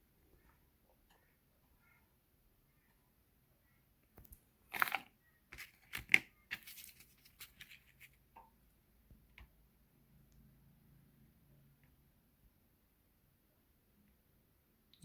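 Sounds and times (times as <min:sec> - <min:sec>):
packaging rustling and clicking: 0:05.6 - 0:08.1.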